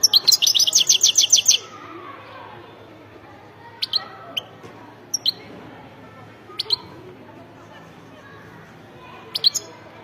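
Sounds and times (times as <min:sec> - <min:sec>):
goldfinch chirps: 0:00.0 - 0:01.6
rapid bird song: 0:00.0 - 0:01.7, 0:03.8 - 0:05.5, 0:06.5 - 0:06.9, 0:09.3 - 0:09.8.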